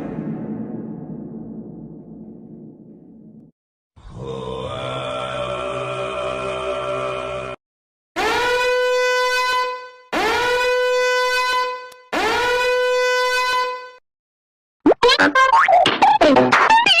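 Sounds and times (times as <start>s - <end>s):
loud horn blasts: 8.2s - 14.0s.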